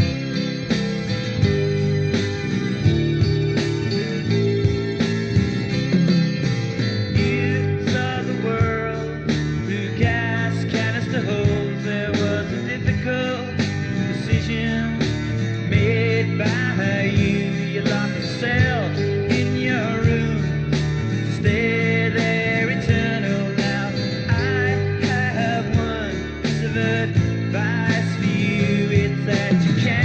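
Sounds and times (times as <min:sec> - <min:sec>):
bending sliding guitar notes: 0:00.0 - 0:30.0
rock band playing instrumental: 0:00.0 - 0:30.0
drum beat: 0:04.6 - 0:08.8.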